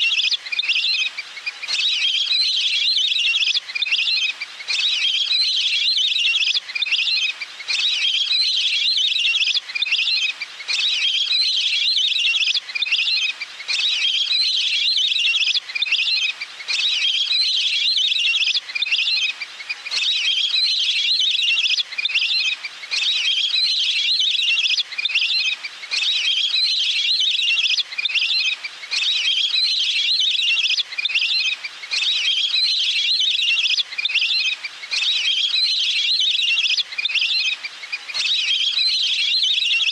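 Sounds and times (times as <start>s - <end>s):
grebe high trilling call: 20.0s - 39.9s.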